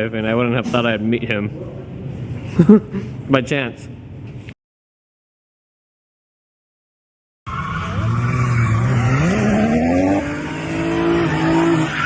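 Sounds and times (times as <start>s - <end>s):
tyre squeal: 7.5s - 10.3s
car engine accelerating: 7.6s - 12.0s.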